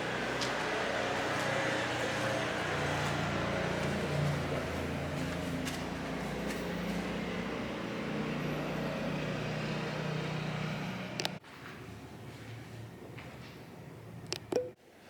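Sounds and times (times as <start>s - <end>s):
click: 11.2s - 11.4s, 14.3s - 14.7s.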